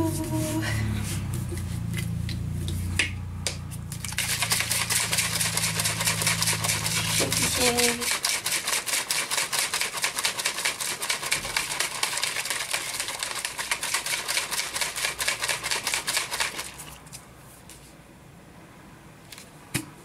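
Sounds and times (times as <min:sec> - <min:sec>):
shaker bottle rattling: 0:03.9 - 0:17.0.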